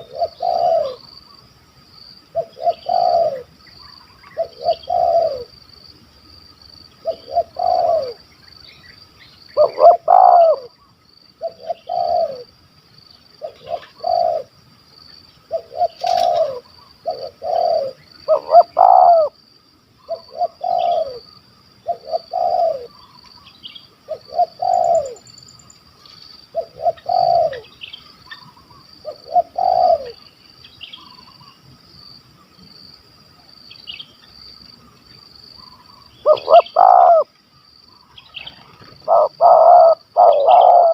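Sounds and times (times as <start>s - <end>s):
dove cooing: 0.0s - 1.2s, 2.3s - 5.6s, 7.0s - 8.3s, 9.6s - 10.8s, 11.4s - 12.5s, 13.4s - 14.6s, 15.5s - 19.4s, 20.0s - 23.2s, 24.1s - 25.2s, 26.5s - 30.2s, 35.7s - 37.3s, 38.4s - 40.9s.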